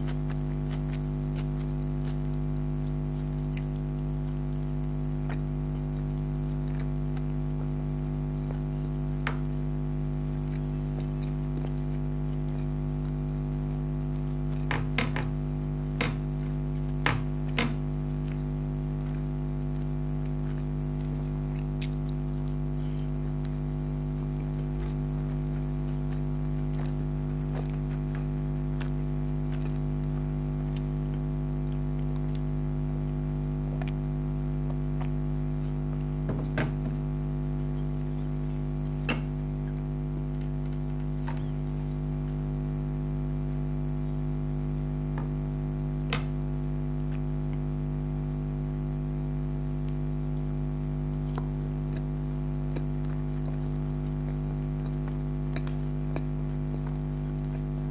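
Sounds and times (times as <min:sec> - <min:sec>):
chewing with clicks and crunches: 0:00.0 - 0:57.9
low electrical hum: 0:00.0 - 0:57.9.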